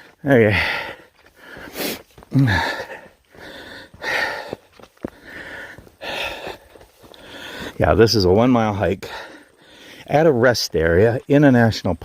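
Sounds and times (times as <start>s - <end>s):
man breathing hard: 0.0s - 7.8s, 9.0s - 10.1s.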